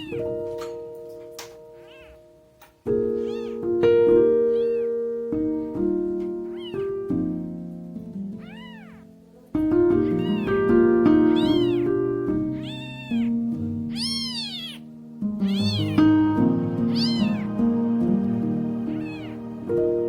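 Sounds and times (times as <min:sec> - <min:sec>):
kitten meowing: 0:00.0 - 0:00.5, 0:01.8 - 0:02.3, 0:03.0 - 0:05.0, 0:06.4 - 0:07.0, 0:08.4 - 0:09.2, 0:09.9 - 0:16.1, 0:16.8 - 0:17.6, 0:18.8 - 0:19.5
background music with held notes: 0:00.0 - 0:20.0.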